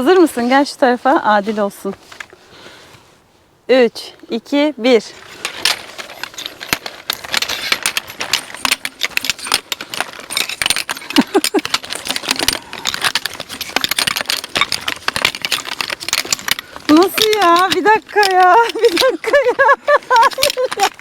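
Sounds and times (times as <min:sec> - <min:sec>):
camping chairs clicking and rattling: 0:05.1 - 0:21.0.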